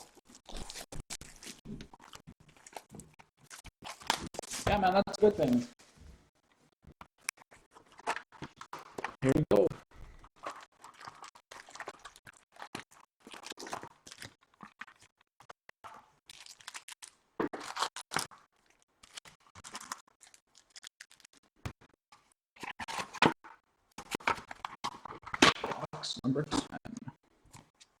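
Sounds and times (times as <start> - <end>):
packaging tearing and crinkling: 0.0 - 4.7, 16.3 - 18.4, 19.0 - 21.4.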